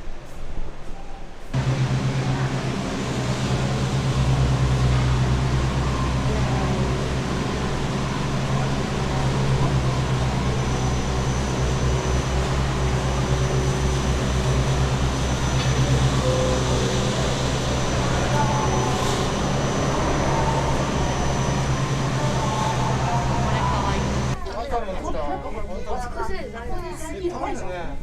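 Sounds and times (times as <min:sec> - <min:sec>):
faint high whine: 0:01.0 - 0:24.4
machine hum with low drone: 0:01.6 - 0:24.4
rushing noise: 0:01.6 - 0:24.4.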